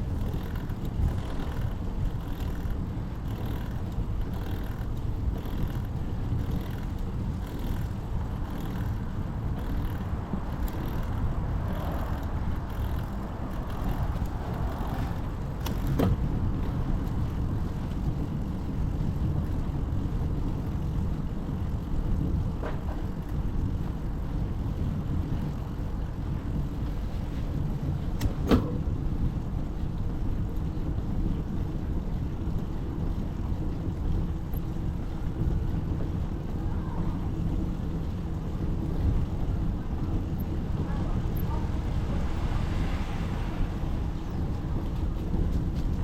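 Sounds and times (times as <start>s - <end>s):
wind and road noise: 0.0s - 46.0s
passing traffic hiss: 41.9s - 44.2s.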